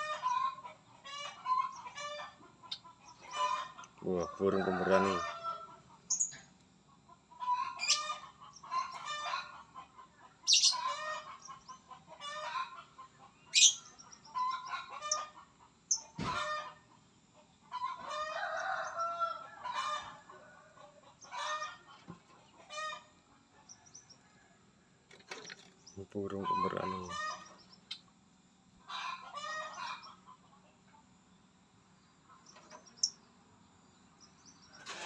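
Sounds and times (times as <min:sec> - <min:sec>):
bird chattering calls: 0:06.1 - 0:06.4, 0:07.5 - 0:09.3, 0:10.4 - 0:12.6, 0:13.4 - 0:16.6.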